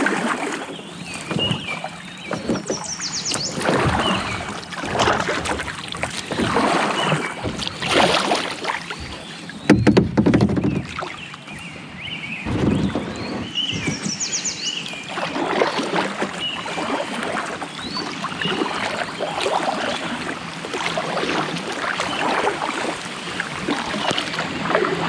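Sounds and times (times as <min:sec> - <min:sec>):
paddle splashing in water: 0:00.0 - 0:11.7, 0:12.4 - 0:25.0
small birds chirping: 0:00.8 - 0:04.5, 0:08.9 - 0:17.0
sharp knocks: 0:09.0 - 0:11.0.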